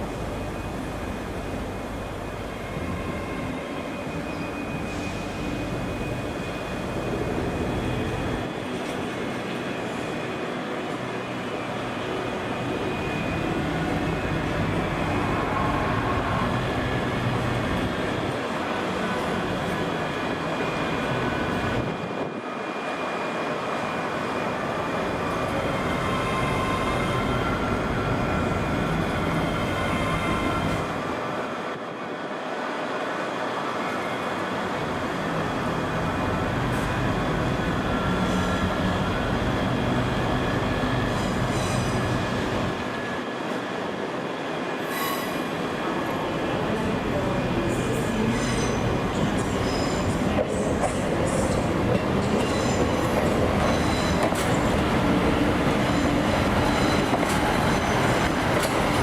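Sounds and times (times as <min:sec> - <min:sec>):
electric train arriving: 0:00.0 - 0:59.0.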